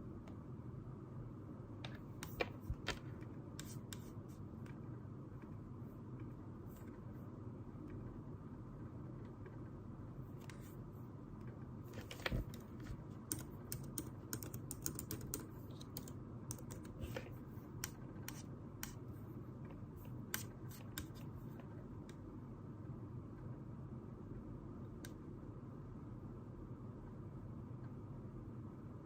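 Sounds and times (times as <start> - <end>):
low room hum: 0.0 - 29.0
keyboard typing: 12.0 - 17.2.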